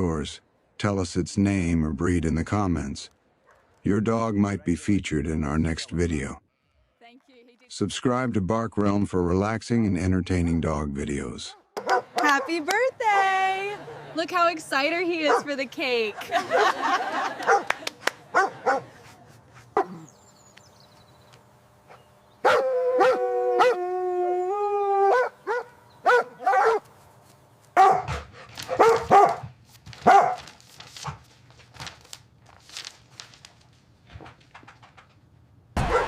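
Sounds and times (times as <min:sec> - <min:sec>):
dog barking: 0:03.4 - 0:03.8, 0:11.8 - 0:12.6, 0:15.3 - 0:15.5, 0:17.4 - 0:19.0, 0:19.8 - 0:20.1, 0:22.4 - 0:23.8, 0:25.1 - 0:26.9, 0:27.8 - 0:30.5, 0:35.8 - 0:36.0.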